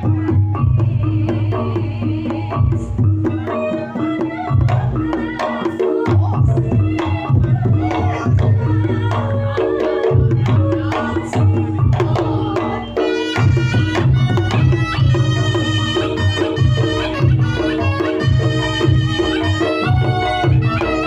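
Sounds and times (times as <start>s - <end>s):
gamelan music over loudspeakers: 0.0s - 21.0s
hand drumming: 0.0s - 21.0s
reedy wind melody: 6.7s - 21.0s.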